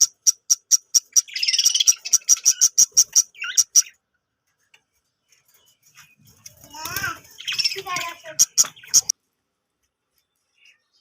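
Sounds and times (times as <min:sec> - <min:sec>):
budgerigars chirping: 0:00.0 - 0:04.0, 0:07.2 - 0:09.1.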